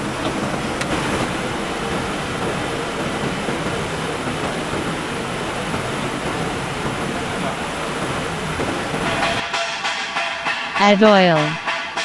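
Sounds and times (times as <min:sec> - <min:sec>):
machinery din with faint tone: 0:00.0 - 0:12.0.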